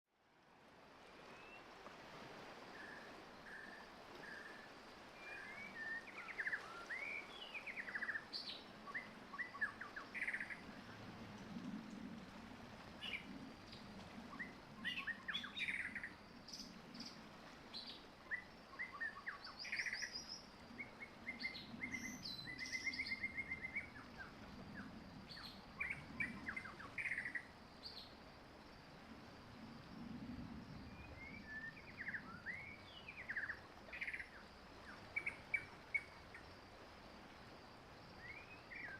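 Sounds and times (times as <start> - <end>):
birds chirping and trilling: 5.8 - 10.6.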